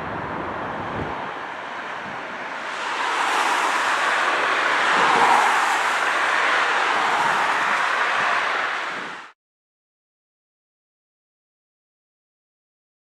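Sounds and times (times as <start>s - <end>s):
jet engine rushing: 0.5s - 9.4s.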